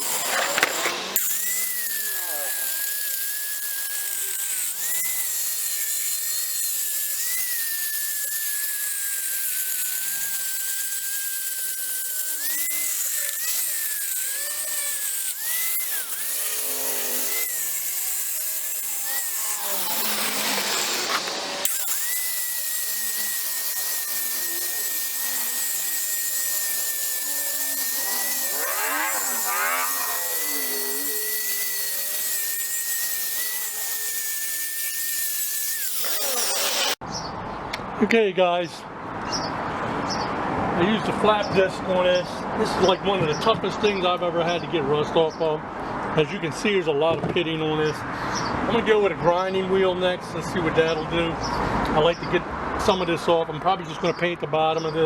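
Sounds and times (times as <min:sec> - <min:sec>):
angle grinder grinding rust: 0:00.0 - 0:37.0.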